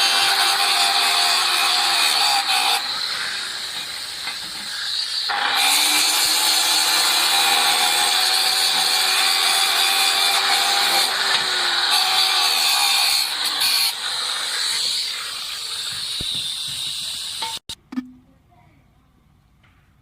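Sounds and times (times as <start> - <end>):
welding arc crackling and hissing: 12.4 - 17.7.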